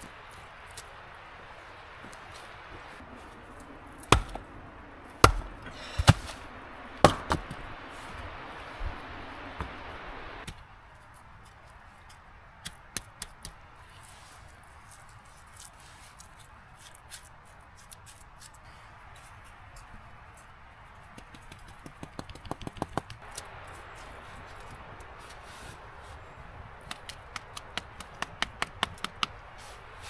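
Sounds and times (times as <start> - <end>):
heavy chopping blows: 4.0 - 4.5, 5.2 - 7.6.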